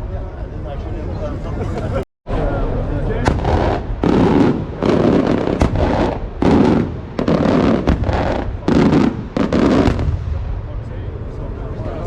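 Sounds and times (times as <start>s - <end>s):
firework shells bursting: 3.2s - 10.2s.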